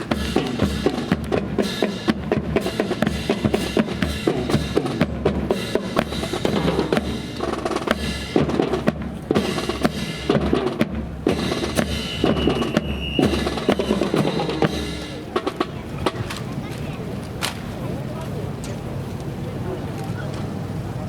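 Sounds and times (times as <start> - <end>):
bass drums: 0.0 - 16.2
snare drums: 0.0 - 16.5.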